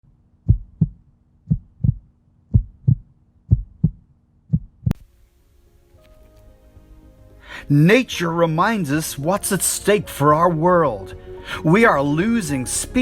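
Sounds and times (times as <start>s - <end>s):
slow heartbeat thuds: 0.4s - 5.0s.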